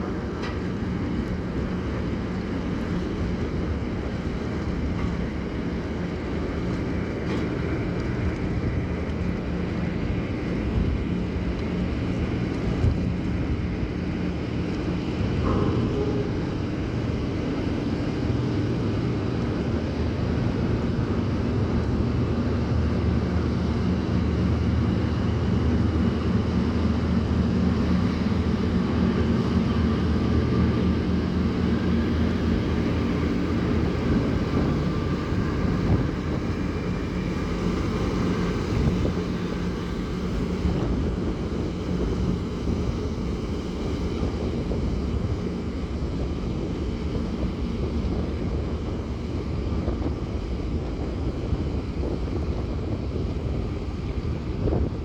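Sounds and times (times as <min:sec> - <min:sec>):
ship engines droning: 0:00.0 - 0:55.0
wind on microphone: 0:00.0 - 0:55.0.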